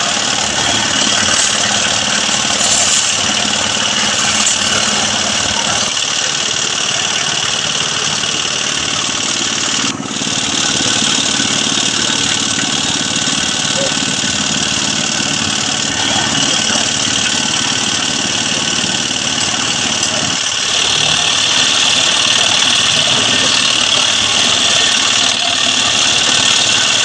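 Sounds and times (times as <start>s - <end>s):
engine running under load: 0.0s - 27.0s.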